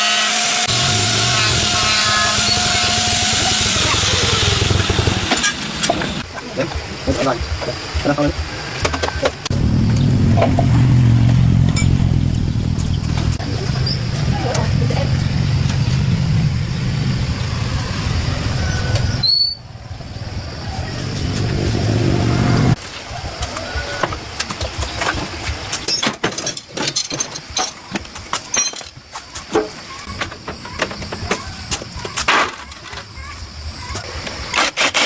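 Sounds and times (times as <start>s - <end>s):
small motorcycle engine running: 0.0s - 6.2s
metallic clinks and knocks: 25.9s - 29.0s.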